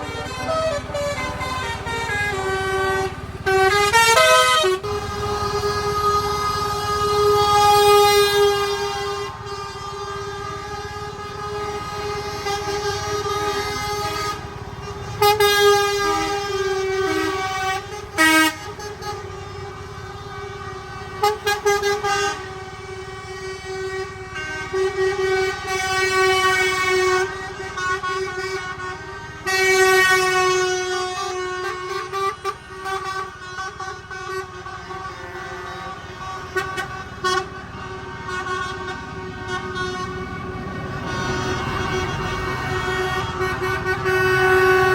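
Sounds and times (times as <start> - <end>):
steady droning horn-like tone: 0.0 - 44.9
truck horn blasts: 0.0 - 44.9.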